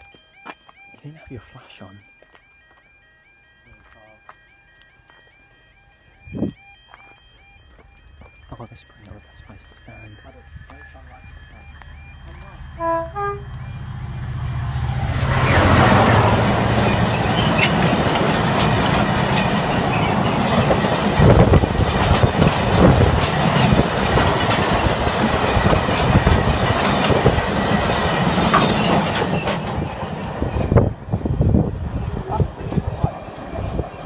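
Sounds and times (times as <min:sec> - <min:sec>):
locomotive drone: 0:00.0 - 0:34.0
wheels clicking over rails: 0:16.7 - 0:30.9
wagons rattling: 0:16.8 - 0:30.2.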